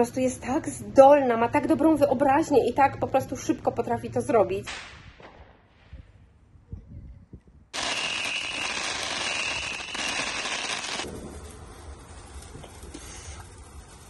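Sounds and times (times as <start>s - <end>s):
fireworks crackling: 7.7s - 14.0s.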